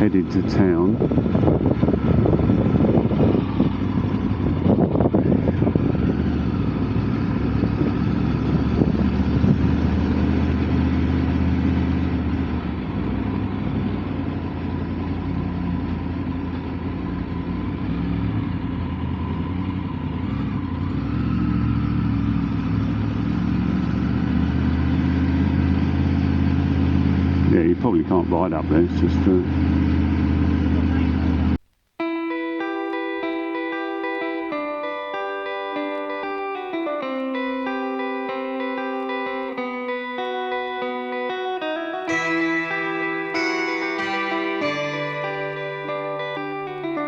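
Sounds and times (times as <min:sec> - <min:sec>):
motorcycle engine running: 0:00.0 - 0:31.6
road and wind noise: 0:00.0 - 0:31.6, 0:33.2 - 0:42.2.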